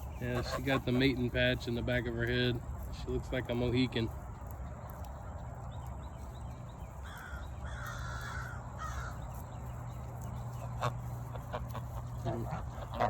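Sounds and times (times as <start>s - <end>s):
bird harsh calls: 0.0s - 2.0s, 4.6s - 13.0s.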